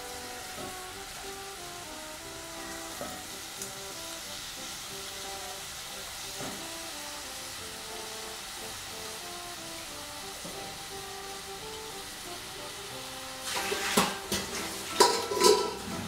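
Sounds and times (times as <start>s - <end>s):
food sizzling in hot oil: 0.0s - 16.0s
light background music: 0.0s - 16.0s
pieces dropping into pot: 13.5s - 15.9s.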